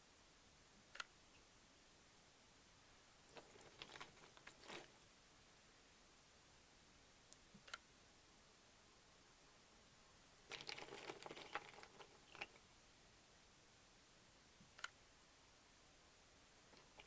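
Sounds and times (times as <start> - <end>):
crackling and tapping: 3.3 - 5.0, 10.4 - 12.7, 16.7 - 17.0.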